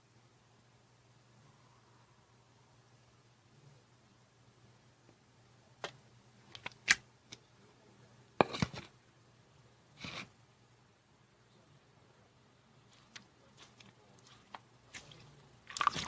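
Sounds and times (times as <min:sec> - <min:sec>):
slime squish: 0:12.9 - 0:16.0
slime popping: 0:14.9 - 0:16.0.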